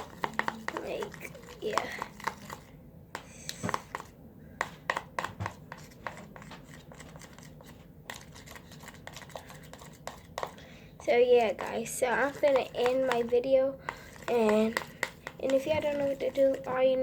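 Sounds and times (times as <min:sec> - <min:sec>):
slime squishing in a bowl: 0:00.0 - 0:17.0.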